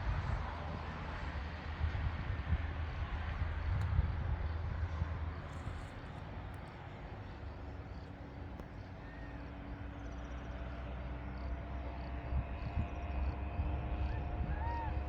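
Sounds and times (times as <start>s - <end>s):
wind on microphone: 0.0s - 6.0s, 12.2s - 15.0s.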